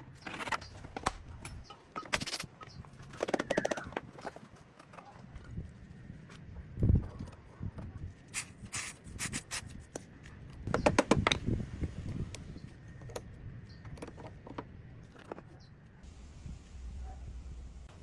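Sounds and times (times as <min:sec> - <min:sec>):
tools and metal parts clicking: 0:00.1 - 0:05.5.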